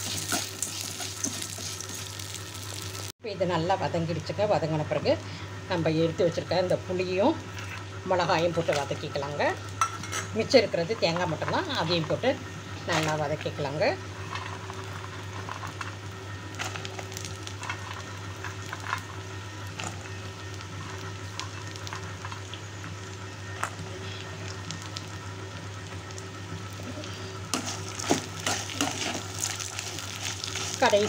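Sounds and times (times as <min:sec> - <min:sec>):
food sizzling in oil with pops: 0:00.0 - 0:03.1, 0:27.5 - 0:31.0.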